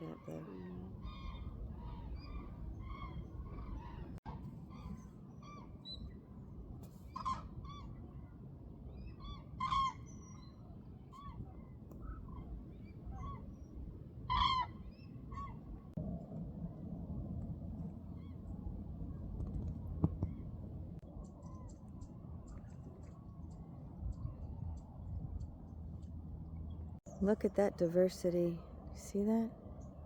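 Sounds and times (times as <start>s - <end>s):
low steady rumble: 0.0s - 30.0s
waterbirds calling: 11.2s - 15.6s.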